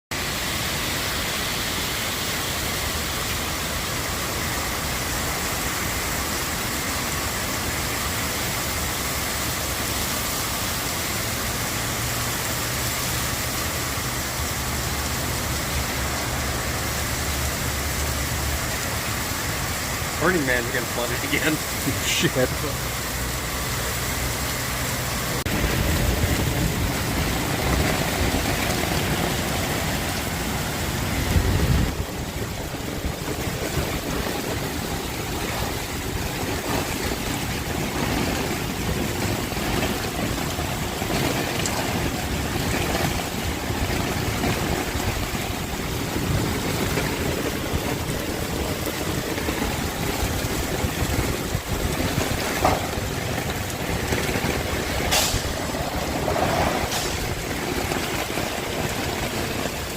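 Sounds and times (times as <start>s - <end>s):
heavy rain falling: 0.1s - 59.9s
wind rumbling on microphone: 23.1s - 59.9s.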